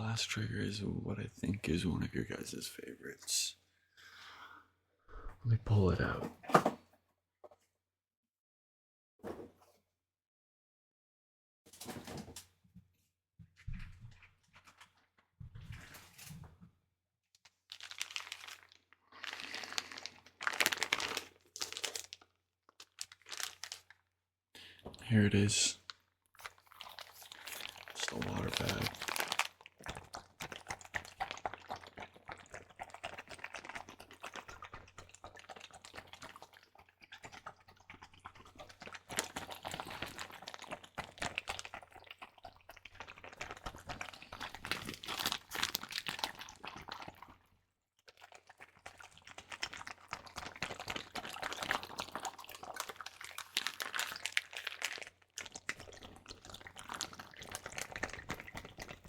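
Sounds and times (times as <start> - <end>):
plastic bag crinkling: 17.5 - 24.0, 25.4 - 34.8, 38.8 - 41.8, 43.0 - 47.2, 49.0 - 59.0
water squishing and sloshing: 17.5 - 24.0, 24.9 - 59.0.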